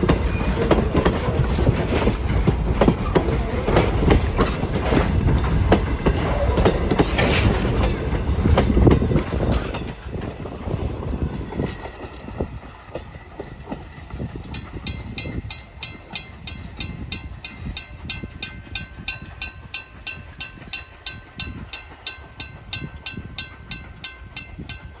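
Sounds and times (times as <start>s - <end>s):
train wheels clattering over rails: 0.0s - 25.0s
crossing warning bell ringing: 14.5s - 25.0s.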